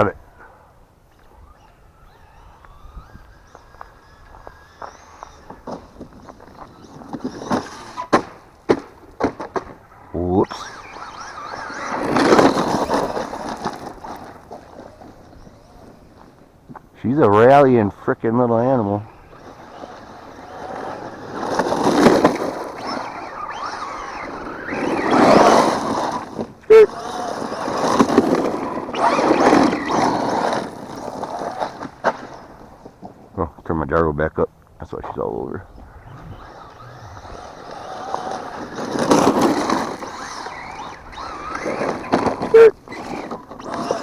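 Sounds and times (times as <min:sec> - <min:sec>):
rushing tyre noise: 0:00.0 - 0:33.4, 0:35.2 - 0:44.0
electric motor whine: 0:01.1 - 0:08.1, 0:18.7 - 0:32.6, 0:35.7 - 0:44.0.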